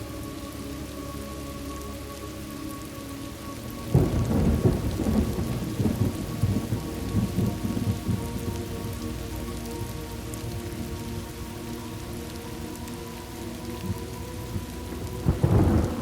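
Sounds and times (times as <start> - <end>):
steady rain: 0.0 - 16.0
thunder clap and rumble: 3.9 - 9.1, 14.6 - 16.0.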